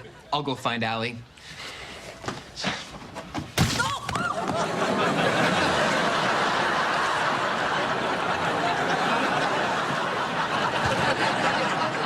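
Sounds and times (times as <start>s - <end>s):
studio audience laughing: 4.4s - 12.0s.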